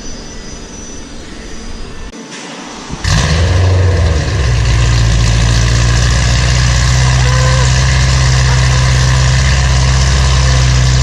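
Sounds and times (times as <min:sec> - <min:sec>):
car engine starting and idling: 0:02.3 - 0:11.0.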